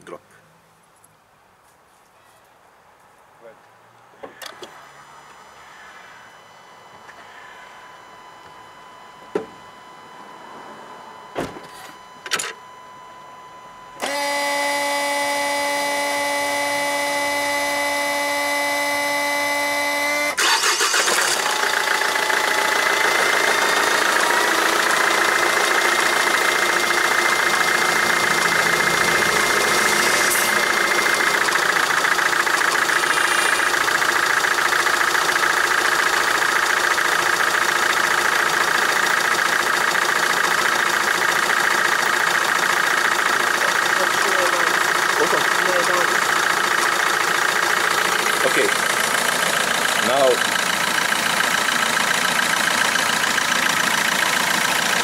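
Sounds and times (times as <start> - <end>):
car engine idling: 12.6 - 55.0
starter motor cranking: 14.0 - 18.2, 20.0 - 55.0.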